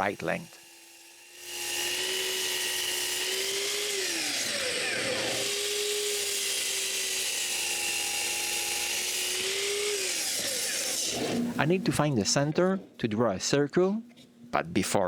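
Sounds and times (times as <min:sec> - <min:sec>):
electric saw cutting wood: 0:00.0 - 0:11.6.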